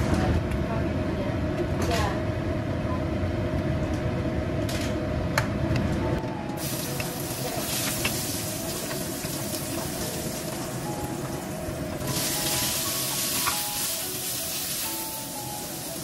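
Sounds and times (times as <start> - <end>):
garlic sizzling in hot oil: 6.6 - 16.0.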